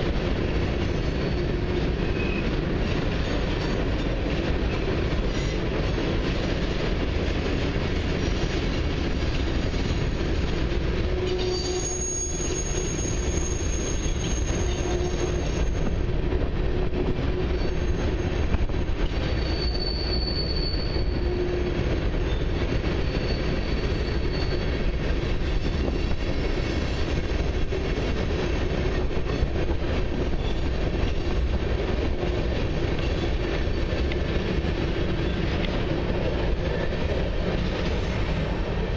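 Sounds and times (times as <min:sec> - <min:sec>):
freight train rumbling past: 0:00.0 - 0:38.9
high-pitched wheel squeal: 0:11.1 - 0:16.0, 0:19.3 - 0:29.4.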